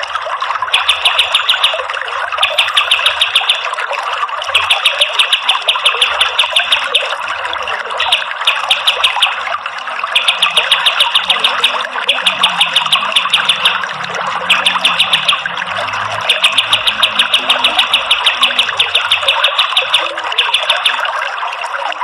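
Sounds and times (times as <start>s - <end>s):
running water: 0.0s - 22.0s
bird rapid high notes: 0.7s - 3.7s, 4.6s - 7.1s, 8.0s - 9.4s, 10.1s - 15.6s, 16.2s - 21.1s.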